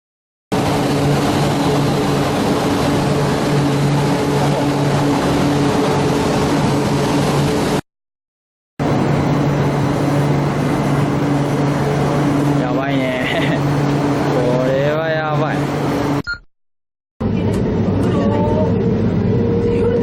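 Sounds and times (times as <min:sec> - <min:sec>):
low hum: 0:08.8 - 0:16.3, 0:17.2 - 0:20.0.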